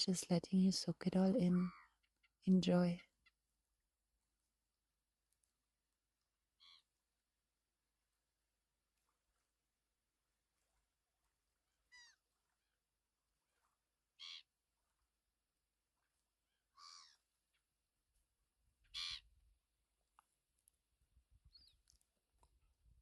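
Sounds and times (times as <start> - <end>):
bird harsh calls: 14.2 - 14.5, 16.8 - 17.2, 18.9 - 19.3.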